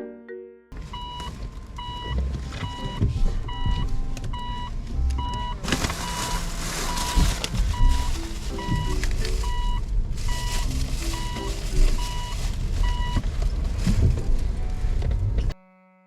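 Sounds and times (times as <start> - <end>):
engine and road rumble: 0.7 - 15.6
reverse warning beeper: 0.8 - 13.2.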